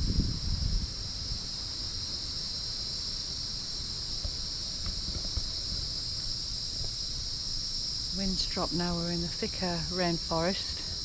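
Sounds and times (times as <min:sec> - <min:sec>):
low wind rumble: 0:00.0 - 0:03.5
high-pitched insect chorus: 0:00.0 - 0:11.0.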